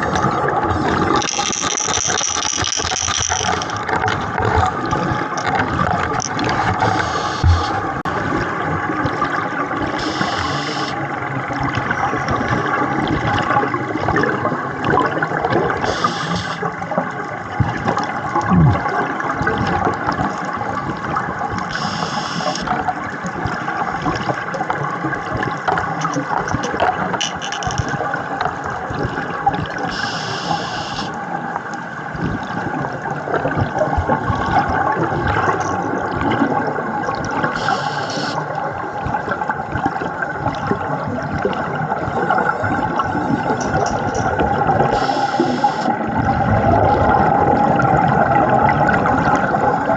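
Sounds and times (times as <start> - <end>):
bubbles gurgling underwater: 0.0 - 49.9
regulator breathing hiss: 6.8 - 7.8, 10.0 - 11.0, 15.9 - 16.7, 21.7 - 22.6, 29.9 - 31.2, 37.6 - 38.4, 45.0 - 45.9.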